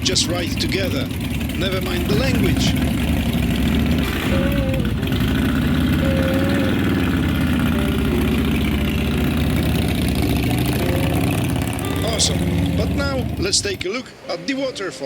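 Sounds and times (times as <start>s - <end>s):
motorcycle engine idling: 0.0s - 14.1s.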